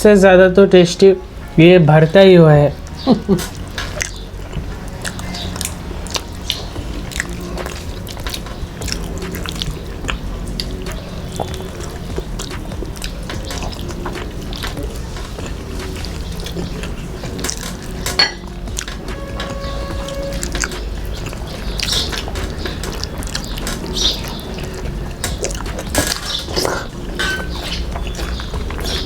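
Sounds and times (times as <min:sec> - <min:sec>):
chewing and wet mouth noises: 0:02.8 - 0:29.0
clinks from a plate: 0:17.6 - 0:18.5, 0:26.0 - 0:27.7.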